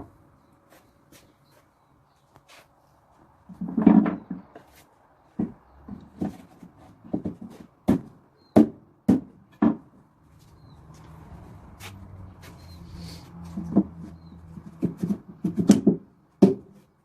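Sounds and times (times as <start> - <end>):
sharp knocks on wood: 5.4 - 6.4, 7.0 - 9.9, 13.6 - 16.8.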